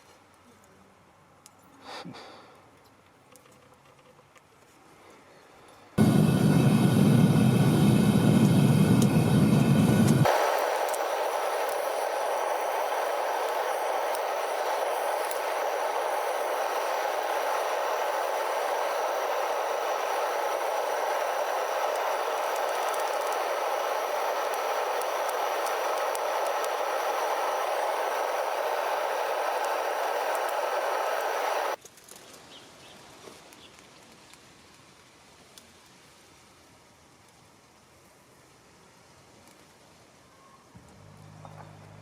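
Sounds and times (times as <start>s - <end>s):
furnace burner rushing: 6.0s - 31.8s.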